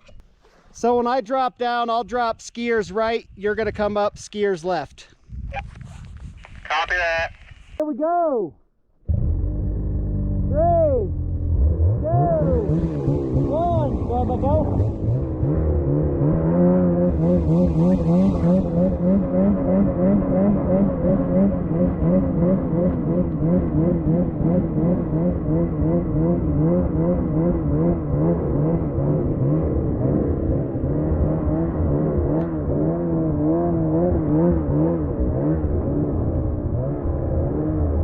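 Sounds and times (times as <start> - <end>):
snowmobile engine revving high: 9.1 - 38.0.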